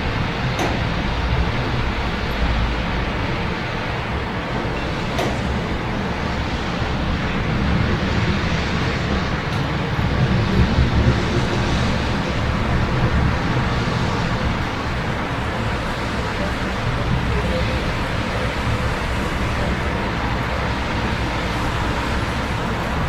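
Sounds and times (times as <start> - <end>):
low rumble of road traffic: 0.0 - 23.0
rain hiss: 10.2 - 23.0.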